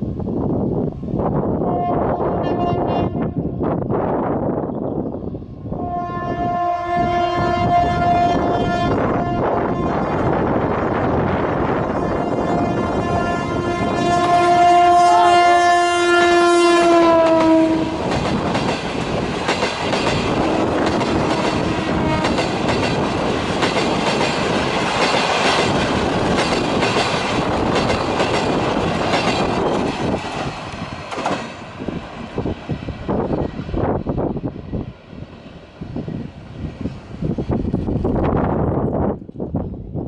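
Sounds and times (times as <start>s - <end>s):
locomotive horn blast: 1.6s - 3.4s, 5.8s - 10.0s, 12.0s - 18.1s, 21.3s - 22.5s
train wheels clattering over rail joints: 17.4s - 31.6s.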